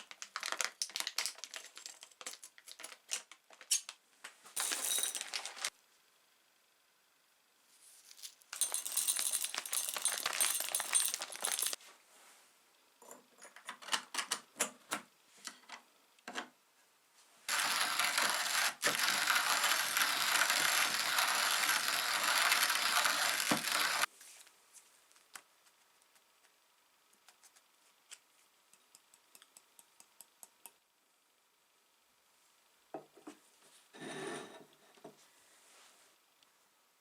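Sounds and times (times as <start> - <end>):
hand coffee grinder grinding: 8.2 - 11.8, 17.5 - 24.1
clicks and rattles: 8.6 - 11.8.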